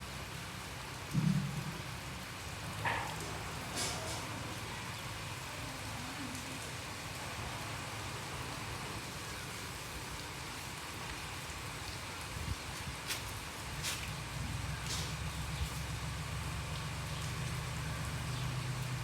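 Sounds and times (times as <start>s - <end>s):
steady rain hiss: 0.0s - 19.0s
low steady rumble: 0.9s - 3.7s, 13.4s - 19.0s.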